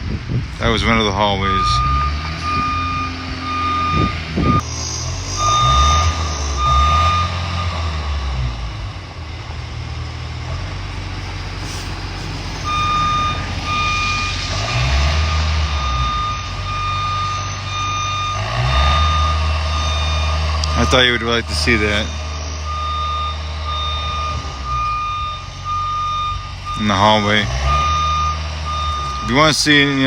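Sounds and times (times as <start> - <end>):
diesel engine revving: 0.0 - 30.0
reversing alarm beeping: 0.8 - 8.3, 12.5 - 30.0.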